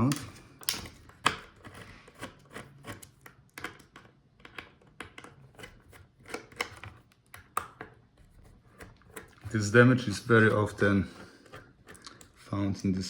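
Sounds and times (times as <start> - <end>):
plastic laptop parts clicking: 0.0 - 9.5.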